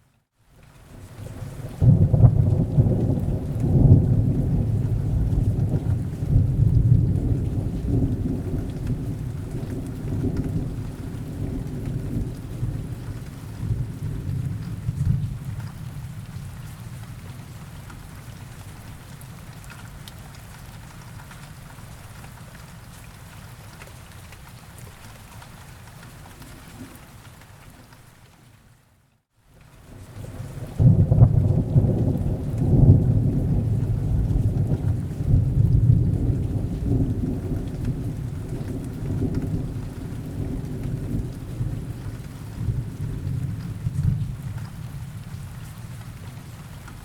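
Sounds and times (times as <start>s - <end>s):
rain falling: 0.1s - 47.0s
thunder rumbling: 1.2s - 17.5s, 30.2s - 47.0s.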